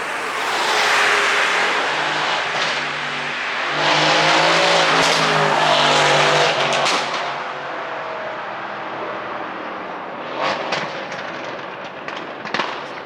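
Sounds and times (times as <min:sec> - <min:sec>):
car engine revving: 0:00.0 - 0:13.0
exhaust pops and crackles: 0:06.6 - 0:07.4, 0:09.6 - 0:13.0.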